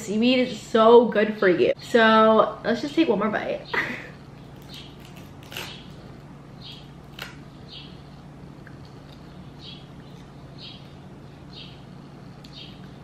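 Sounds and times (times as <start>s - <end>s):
faint low hum: 0.0s - 13.0s
person chewing crisp snack: 4.4s - 7.6s, 8.2s - 11.5s.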